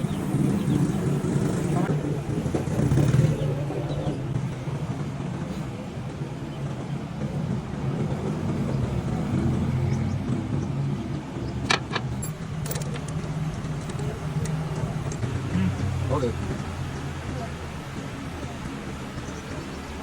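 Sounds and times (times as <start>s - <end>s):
car engine idling: 0.0s - 20.0s
sharp clicks: 11.6s - 15.3s.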